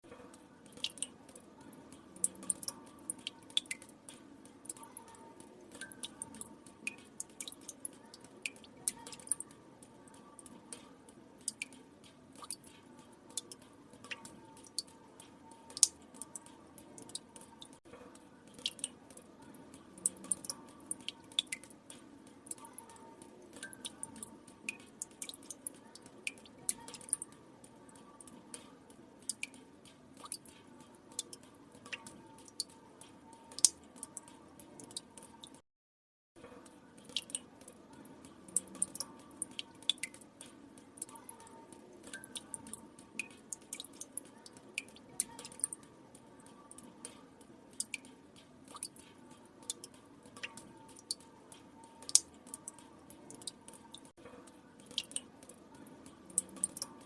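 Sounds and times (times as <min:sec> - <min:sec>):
water drops dripping into water: 0:00.0 - 0:35.6, 0:36.4 - 0:57.0.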